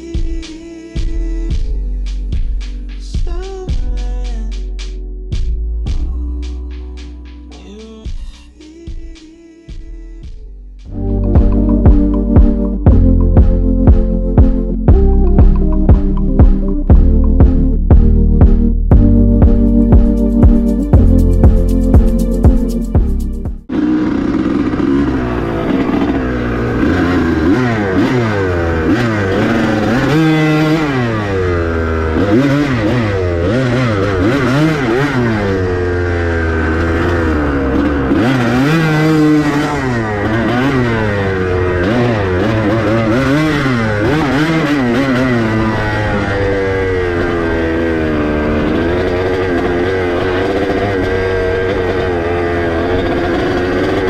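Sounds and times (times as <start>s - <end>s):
dirt bike engine revving: 23.7s - 54.0s.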